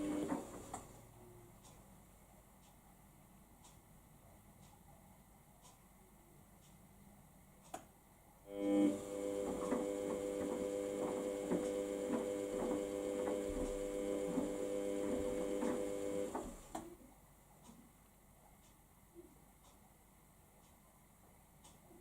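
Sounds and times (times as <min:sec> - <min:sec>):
washing machine motor whine: 0:00.0 - 0:00.7, 0:08.5 - 0:16.7.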